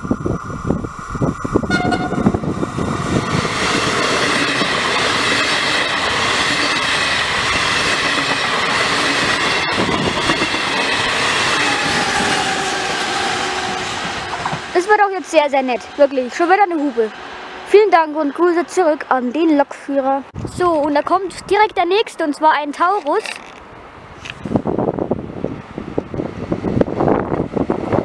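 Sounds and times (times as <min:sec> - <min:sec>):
train wheels rushing on rails: 0:00.0 - 0:19.8, 0:23.1 - 0:28.0
train horn blast: 0:01.7 - 0:02.4.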